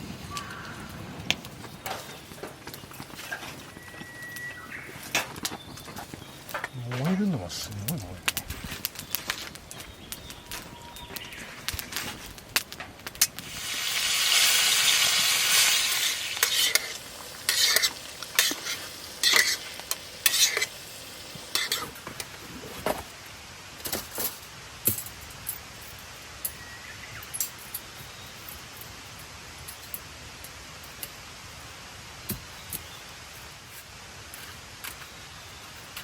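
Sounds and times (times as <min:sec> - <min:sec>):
food sizzling in a pan: 0:13.2 - 0:23.8
utensil scraping and clinking in pan: 0:13.5 - 0:20.8, 0:21.5 - 0:22.4.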